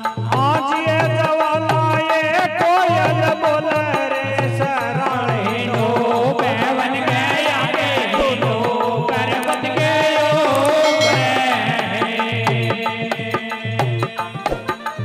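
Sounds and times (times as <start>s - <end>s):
wavering devotional melody: 10.4s - 13.1s
hand drum beat: 10.5s - 12.0s.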